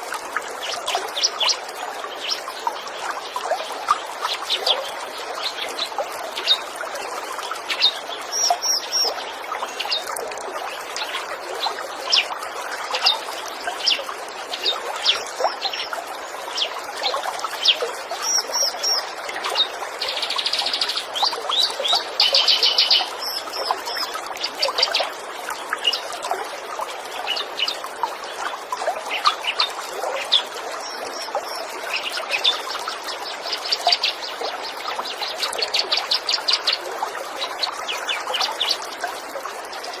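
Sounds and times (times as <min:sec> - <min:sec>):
trickling stream: 0:00.0 - 0:40.0
birds chirping and calling: 0:17.6 - 0:25.1.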